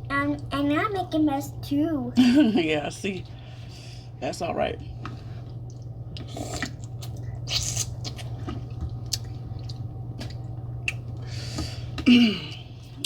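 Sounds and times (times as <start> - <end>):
wet chewing and squishing: 5.4 - 11.2.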